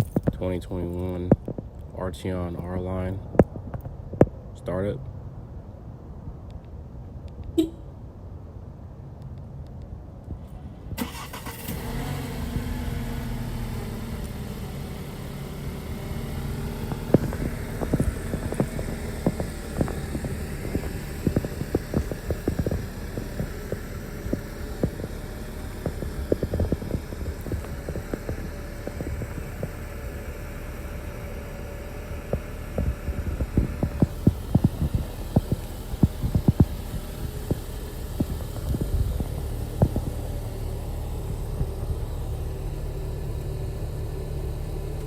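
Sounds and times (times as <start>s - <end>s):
car engine fast idle: 11.0s - 45.0s
sharp engine taps: 15.4s - 43.8s.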